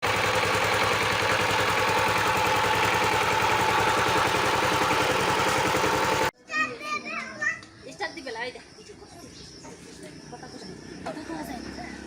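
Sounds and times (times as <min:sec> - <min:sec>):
power tiller engine running: 0:00.0 - 0:06.3.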